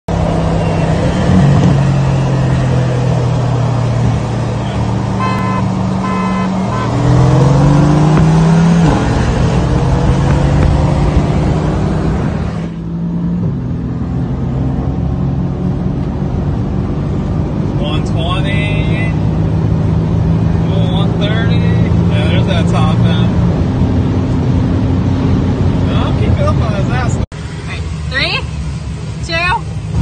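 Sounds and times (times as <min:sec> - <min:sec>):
car engine: 0:00.1 - 0:30.0
road noise inside car: 0:00.1 - 0:30.0
short beeps: 0:05.2 - 0:07.0.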